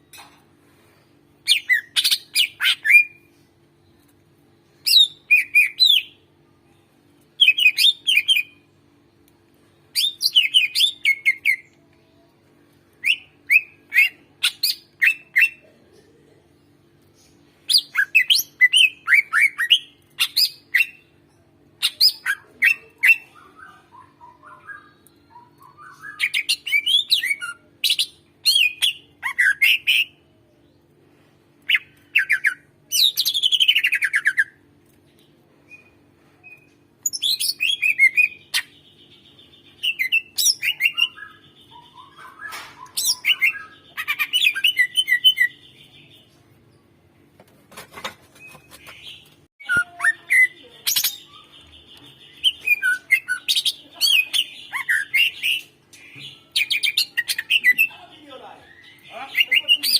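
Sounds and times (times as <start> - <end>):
faint steady hum: 0.0 - 47.4
bird chirping: 16.7 - 30.9, 31.7 - 47.0, 48.0 - 59.9.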